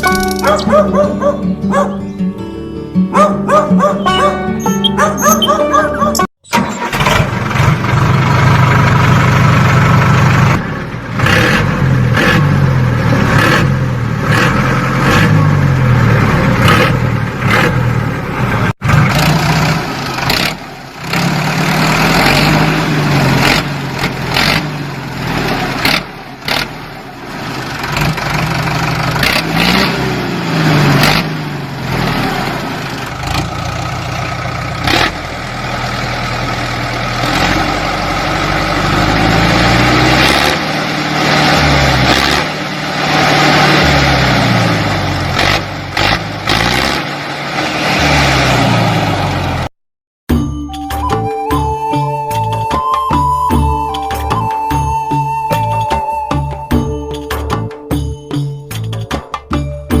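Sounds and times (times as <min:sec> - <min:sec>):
tractor engine revving: 0:03.1 - 0:49.7.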